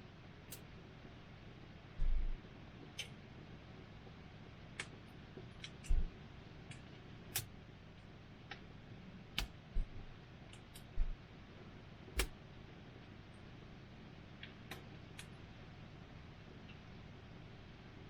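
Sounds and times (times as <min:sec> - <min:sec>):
faint steady hiss: 0:00.0 - 0:18.0
low thuds: 0:09.7 - 0:10.1.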